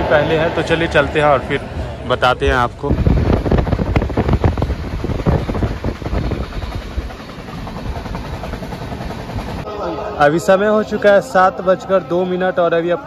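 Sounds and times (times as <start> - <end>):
low train rumble: 0.0 - 13.0
rushing air: 1.6 - 9.7
train wheels clattering over rails: 2.9 - 9.6.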